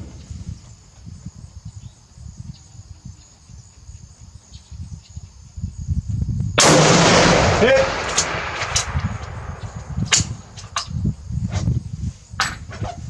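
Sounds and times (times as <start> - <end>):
wind rumble on microphone: 0.0 - 13.0
loud rifle shot: 6.6 - 10.9.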